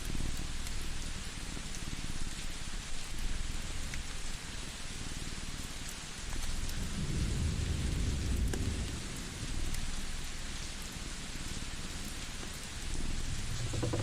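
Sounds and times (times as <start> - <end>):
rain-like hiss: 0.0 - 14.0
wood fire crackling: 9.2 - 14.0
low rumble: 12.8 - 14.0.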